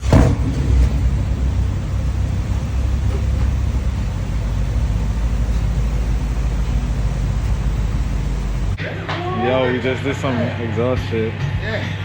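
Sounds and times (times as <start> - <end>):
car engine running: 0.0 - 8.8.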